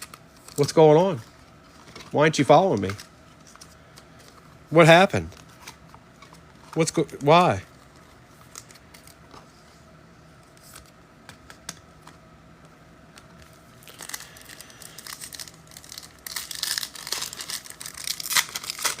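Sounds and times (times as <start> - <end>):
foil wrapper crinkling and tearing: 0.0 - 3.7, 13.8 - 19.0.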